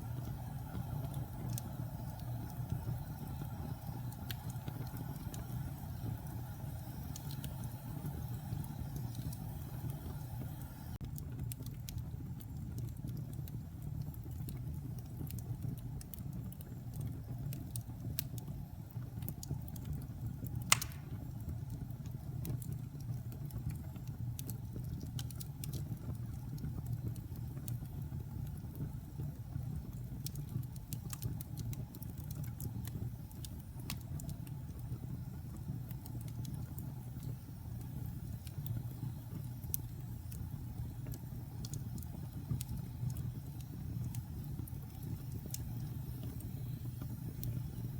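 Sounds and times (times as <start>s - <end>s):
log fire crackling: 0.0s - 47.9s.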